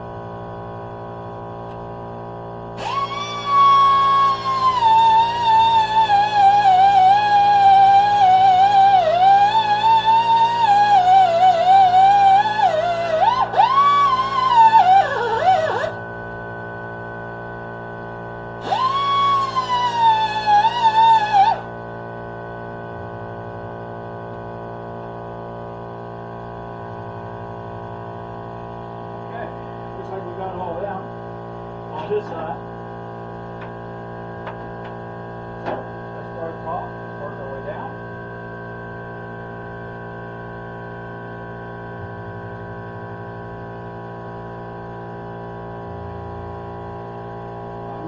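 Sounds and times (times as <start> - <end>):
electrical hum: 0.0 - 48.0
low pulsing: 0.0 - 48.0
wavering electronic tone: 2.7 - 25.6.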